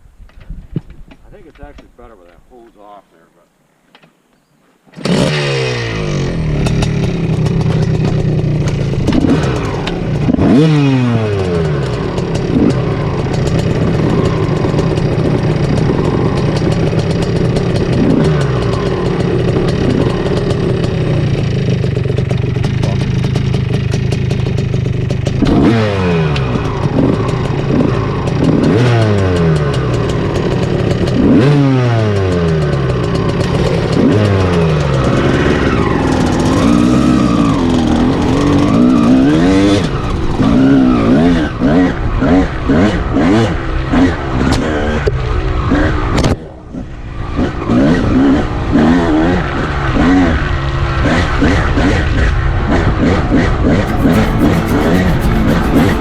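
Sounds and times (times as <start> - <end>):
two-stroke dirt bike engine: 4.9 - 46.2, 53.8 - 56.0.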